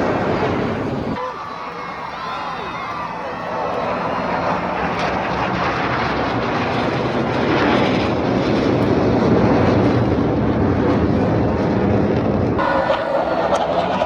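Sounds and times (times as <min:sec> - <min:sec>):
military aircraft flying past: 0:00.0 - 0:14.0.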